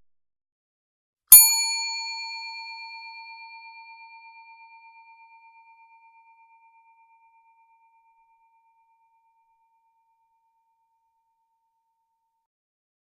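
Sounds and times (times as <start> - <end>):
struck bell ringing: 1.3 - 3.4.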